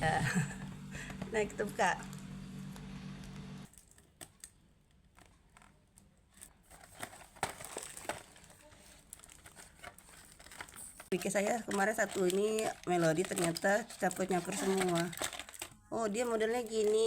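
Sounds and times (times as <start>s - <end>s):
low steady hum: 0.0s - 3.8s
plastic packaging crinkling: 3.6s - 17.0s.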